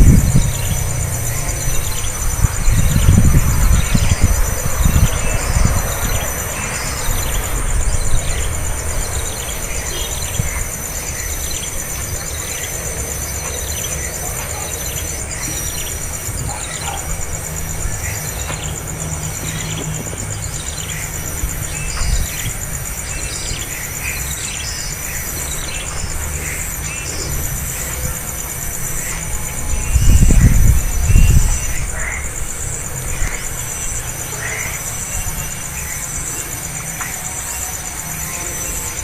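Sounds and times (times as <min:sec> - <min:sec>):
low rumbling: 0:00.0 - 0:13.1
baby birds cheeping: 0:00.0 - 0:39.0
high insect drone: 0:00.0 - 0:39.0.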